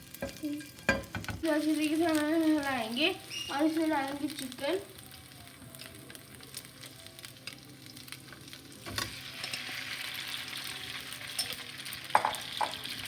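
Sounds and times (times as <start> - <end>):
oil sizzling in a frying pan: 0.0 - 13.0.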